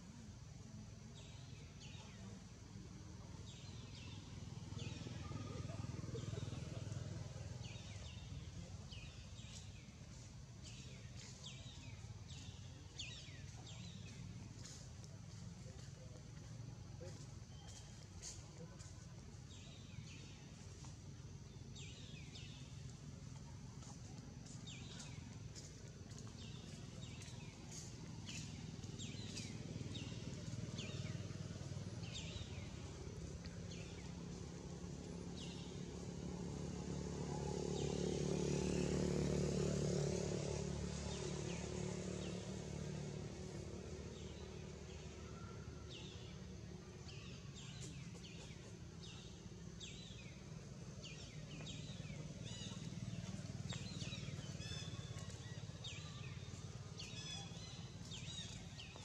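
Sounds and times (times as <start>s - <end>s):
passing vehicle engine hum: 0.1s - 59.0s
bird chirping: 47.0s - 59.0s.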